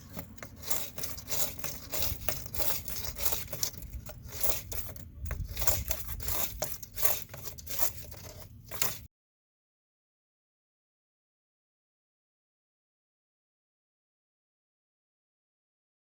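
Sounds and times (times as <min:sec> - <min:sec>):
tool scraping inside drain pipe: 0:00.0 - 0:09.1.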